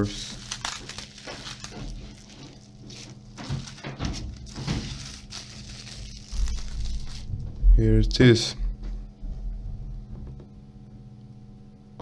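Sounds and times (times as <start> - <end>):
plastic and packaging rustling: 0.0 - 7.6
heavy low bump: 6.3 - 10.6.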